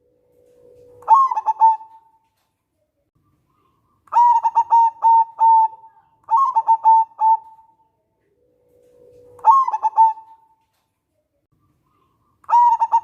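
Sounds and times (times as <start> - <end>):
dove cooing: 0.4 - 2.2, 3.6 - 10.6, 12.0 - 13.0.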